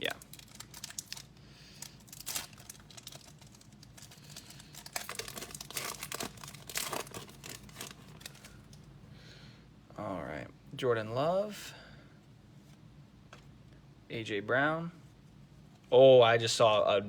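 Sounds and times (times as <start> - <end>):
plastic wrapper crinkling and tearing: 0.0 - 8.9.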